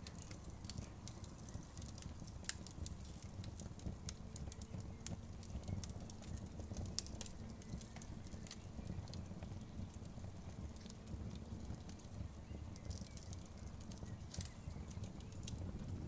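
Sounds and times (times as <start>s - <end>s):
fire low rumble: 0.0s - 16.0s
wood fire pops and snaps: 0.0s - 16.0s.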